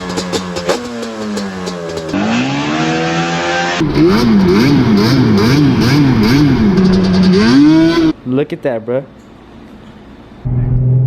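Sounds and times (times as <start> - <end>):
exhaust pops: 0.0 - 2.4
car exhaust engine note: 3.6 - 8.2, 10.4 - 11.0.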